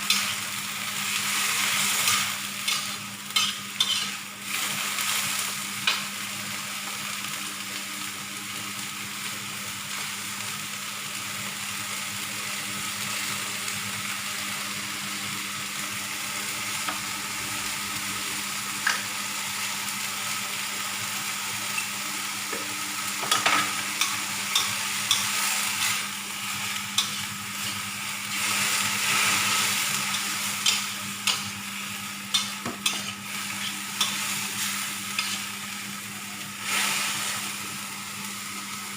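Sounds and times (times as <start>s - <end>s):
food sizzling in a frying pan: 0.0s - 38.9s
utensil clicking and scraping pan: 2.1s - 4.2s.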